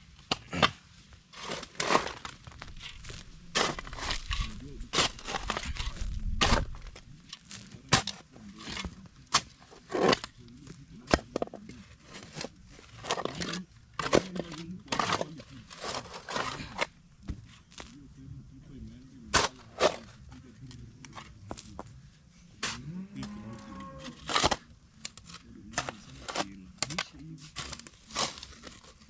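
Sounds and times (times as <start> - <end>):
digging tool scraping into earth: 0.4 - 16.9, 19.2 - 20.2, 24.0 - 29.0.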